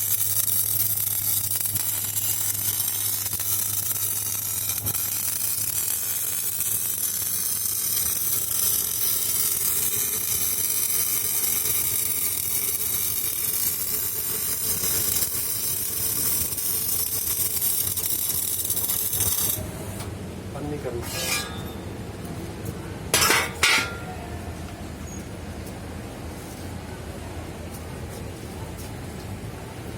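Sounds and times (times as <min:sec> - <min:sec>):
welding arc sizzling and crackling: 0:00.0 - 0:21.8.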